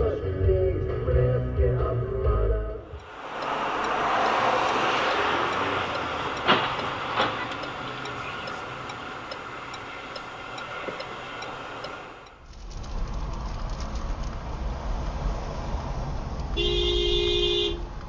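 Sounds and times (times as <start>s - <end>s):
vehicle rushing noise: 2.9s - 16.6s
faint regular ticking: 3.0s - 12.9s
sharp knocks: 5.4s - 7.8s.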